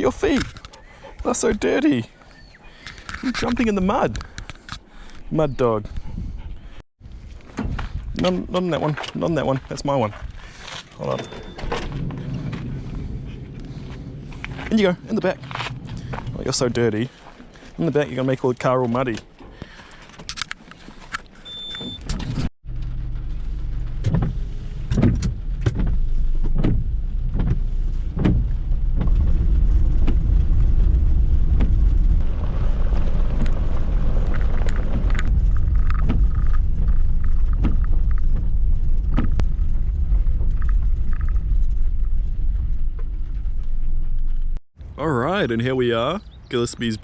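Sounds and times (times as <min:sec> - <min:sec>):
car road and engine rumble: 0:10.1 - 0:17.8, 0:19.0 - 0:44.6
knocks and rattles: 0:22.1 - 0:44.6.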